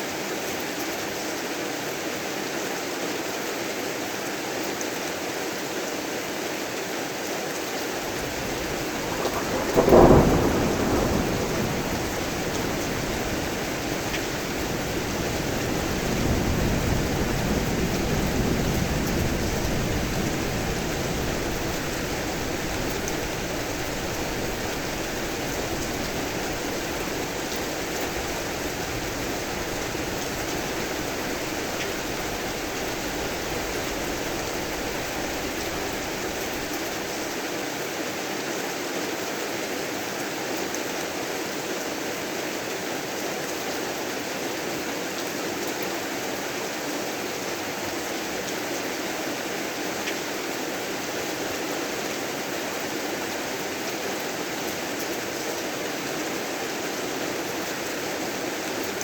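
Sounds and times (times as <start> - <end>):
heavy rain: 0.0 - 59.0
low rumble of thunder: 8.0 - 37.2
thunder clap: 8.1 - 37.1.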